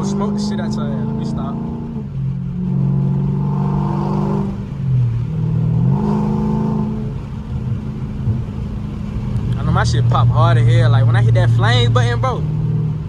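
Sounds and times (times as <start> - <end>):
loud car exhaust: 0.0 - 13.0.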